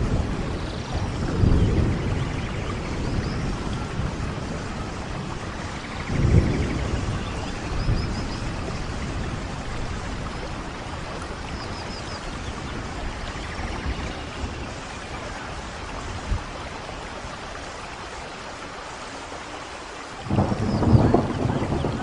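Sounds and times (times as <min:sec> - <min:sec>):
heavy rainfall: 0:00.0 - 0:22.0.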